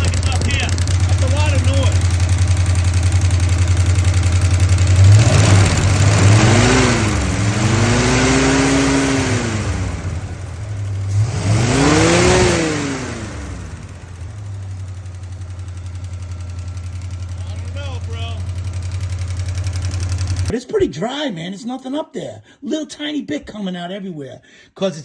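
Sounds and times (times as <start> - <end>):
valvetrain ticking noise: 0.0 - 6.4
car engine idling and revving: 0.0 - 20.5.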